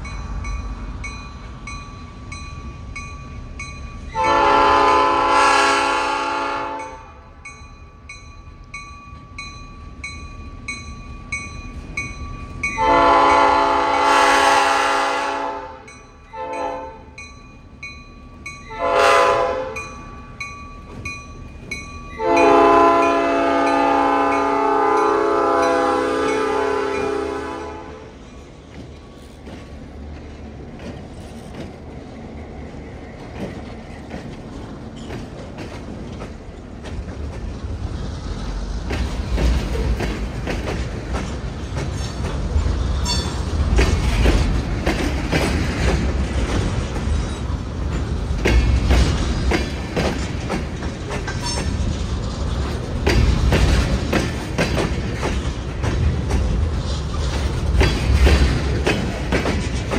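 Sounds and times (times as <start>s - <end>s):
freight train rolling past: 0.0s - 59.9s
low locomotive rumble: 0.0s - 59.9s
wheels clicking over rail joints: 28.2s - 59.9s
train wheel squeal: 41.3s - 44.5s, 48.8s - 52.8s.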